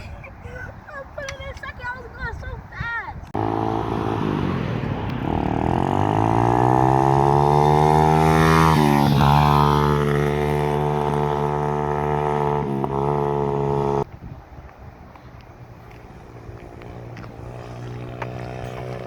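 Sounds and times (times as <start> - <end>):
motorbike engine revving: 3.4 - 14.1, 16.6 - 19.0.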